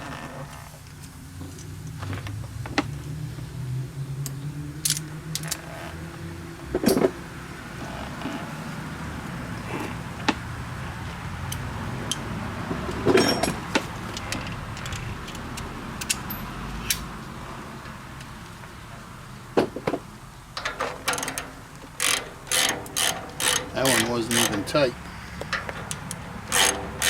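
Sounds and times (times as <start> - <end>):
metal clatter: 12.9 - 15.1, 18.6 - 27.0.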